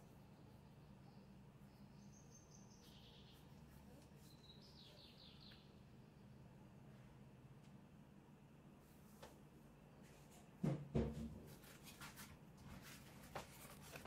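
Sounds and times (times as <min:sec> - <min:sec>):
faint high-pitched bird calls: 0:00.0 - 0:06.5
low steady hum: 0:00.0 - 0:14.0.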